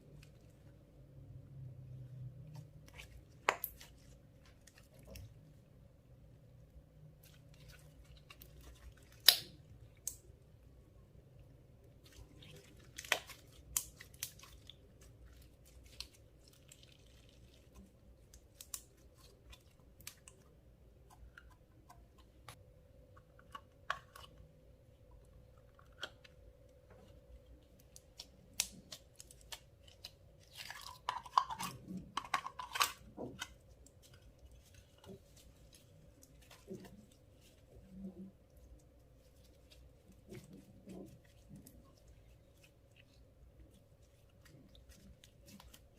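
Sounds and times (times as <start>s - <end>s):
slime squelching and clicking: 2.5s - 5.4s, 7.2s - 10.4s, 11.9s - 24.5s.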